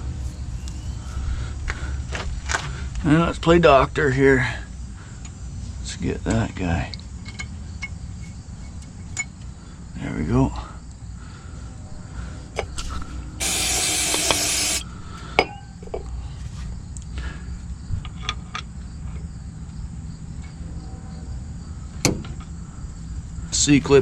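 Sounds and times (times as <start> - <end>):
aerosol spray hiss: 12.9 - 14.8.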